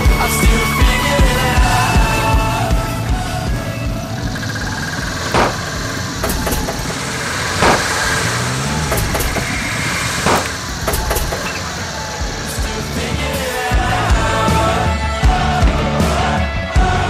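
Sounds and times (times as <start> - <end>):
car engine running rough: 0.1 - 14.5
loud engine bangs: 2.4 - 14.6.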